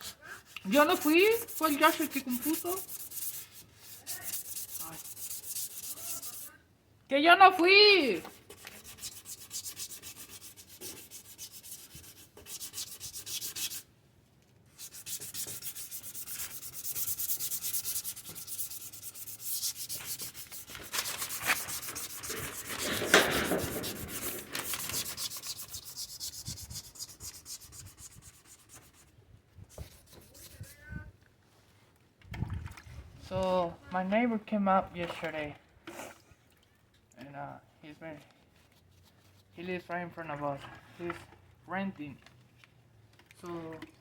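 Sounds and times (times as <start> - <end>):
sandpaper rubbing on plastic: 0.0 - 6.6, 8.2 - 13.9, 14.8 - 29.1, 29.7 - 30.8.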